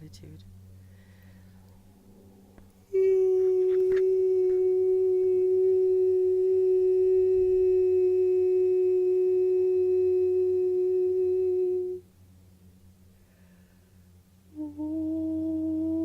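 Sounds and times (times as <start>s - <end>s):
woman toning a long high note: 2.9s - 12.1s, 14.5s - 16.0s.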